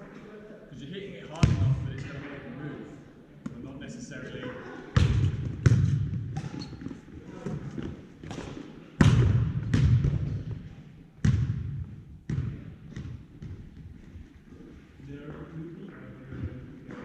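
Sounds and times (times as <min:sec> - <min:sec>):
volleyball smacks and bounces: 0:05.0 - 0:10.6, 0:11.2 - 0:13.6.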